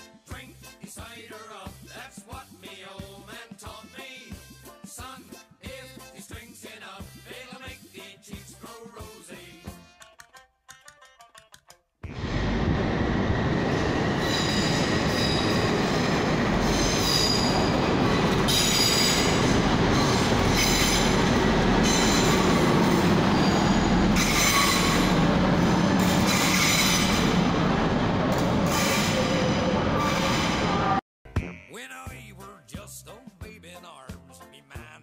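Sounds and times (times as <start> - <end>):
train engine and wheels rumbling: 12.1 - 31.0
train wheels squealing: 13.2 - 27.5, 28.6 - 31.0.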